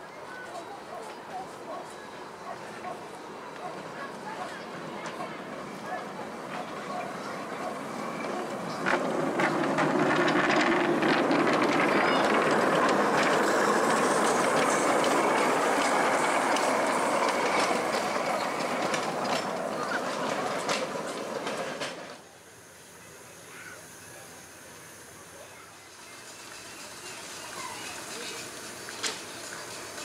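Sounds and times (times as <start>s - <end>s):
train wheels rumbling on rails: 0.0s - 22.2s, 25.9s - 30.0s
clicks over rail joints: 8.2s - 22.2s.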